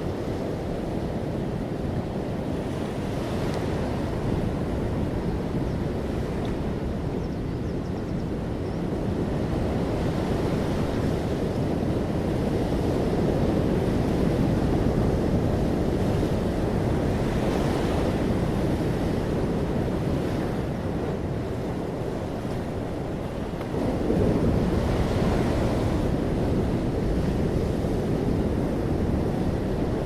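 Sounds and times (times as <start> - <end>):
ocean waves breaking on shore: 0.0 - 7.4, 8.3 - 30.0.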